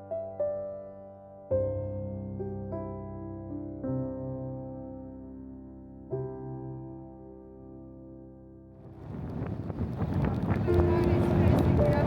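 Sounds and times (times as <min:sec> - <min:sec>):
wind buffeting microphone: 0:08.8 - 0:12.0.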